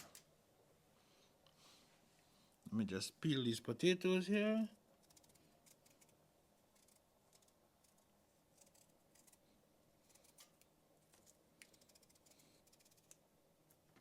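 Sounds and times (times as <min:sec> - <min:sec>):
knife scraping potato skin: 0:05.0 - 0:13.2.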